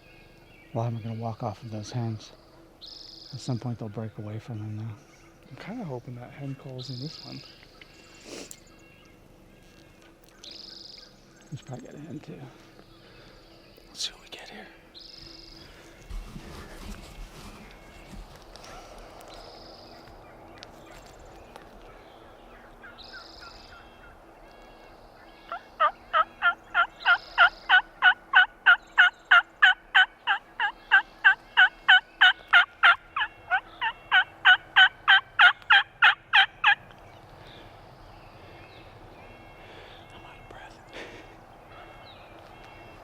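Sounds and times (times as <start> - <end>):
turkey hen yelping: 25.2 - 37.0.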